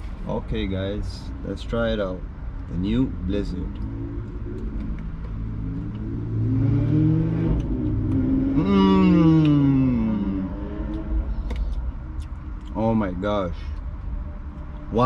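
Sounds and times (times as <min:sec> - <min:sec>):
car engine accelerating: 0:02.7 - 0:12.8.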